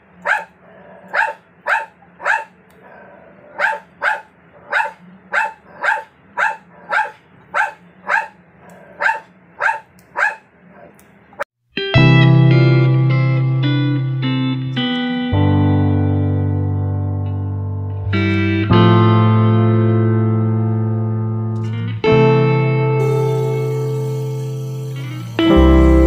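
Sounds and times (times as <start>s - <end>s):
dog barking: 0.2s - 11.0s.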